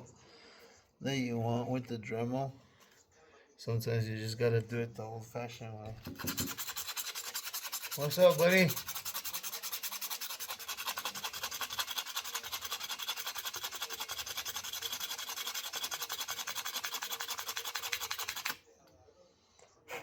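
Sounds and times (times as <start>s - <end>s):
abrasive rubbing on metal shaft: 6.0s - 18.5s.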